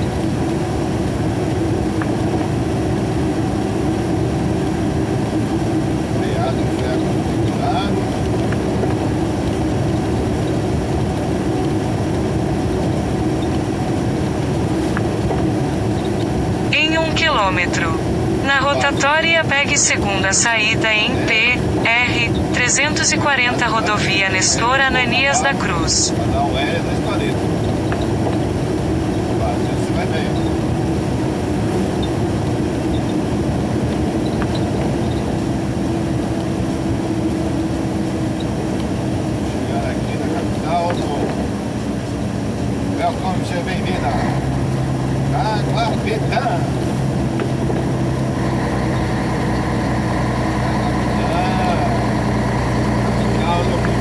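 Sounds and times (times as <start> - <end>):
constant hum: 0.0 - 54.0
truck engine and road noise: 0.0 - 54.0.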